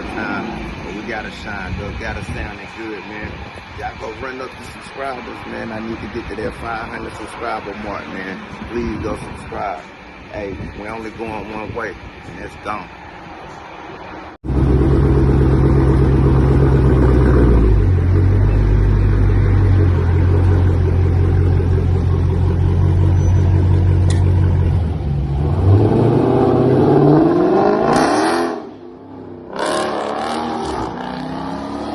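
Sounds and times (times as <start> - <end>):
car engine revving: 14.4 - 31.9.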